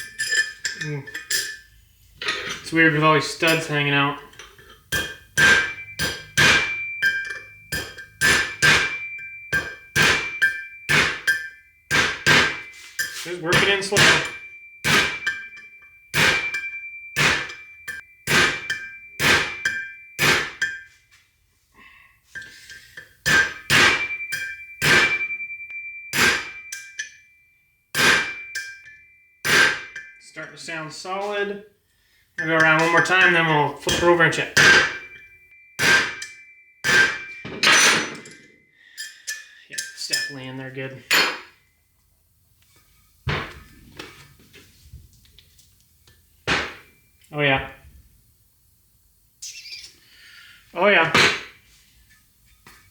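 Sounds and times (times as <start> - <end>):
faint metal taps and clinks: 3.4 - 5.2
hammer striking metal drift: 4.9 - 20.9, 23.2 - 27.2, 28.0 - 30.2, 32.6 - 38.4, 46.4 - 47.0.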